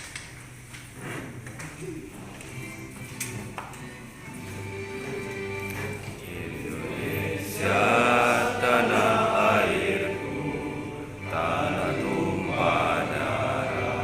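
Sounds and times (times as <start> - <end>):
voices singing together with music: 4.3 - 14.0.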